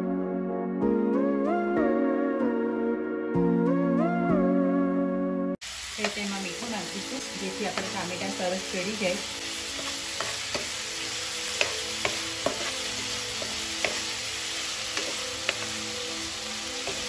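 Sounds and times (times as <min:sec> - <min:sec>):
vegetables sizzling in oil: 0:05.6 - 0:17.0
metal spatula scraping pan: 0:11.5 - 0:14.2.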